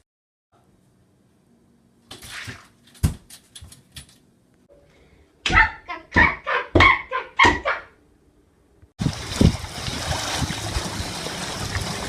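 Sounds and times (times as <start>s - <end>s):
outdoor ambience hiss: 0.6s - 6.1s, 7.3s - 12.0s
dog barking: 5.5s - 8.0s.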